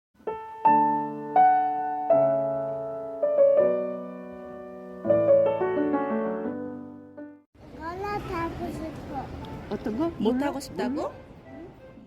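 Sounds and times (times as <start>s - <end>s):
gentle piano chords: 0.2s - 7.5s.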